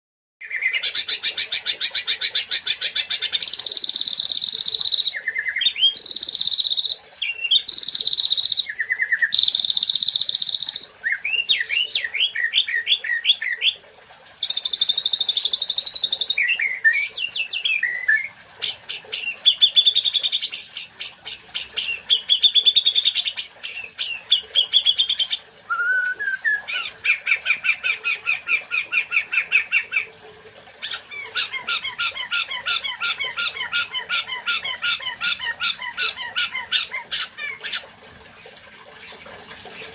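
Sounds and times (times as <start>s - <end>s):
bird singing trills and whistles: 3.1s - 13.8s, 14.4s - 30.1s.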